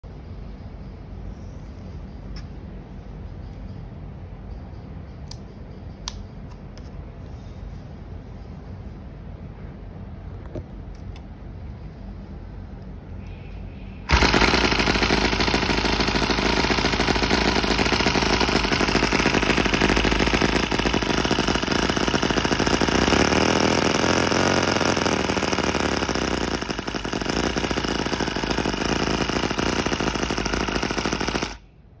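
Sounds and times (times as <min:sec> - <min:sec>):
model engine chattering: 0:14.1 - 0:31.6.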